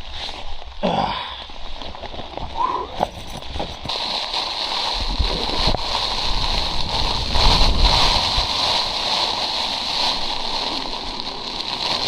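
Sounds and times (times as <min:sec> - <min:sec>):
blizzard wind on microphone: 0:03.4 - 0:12.0.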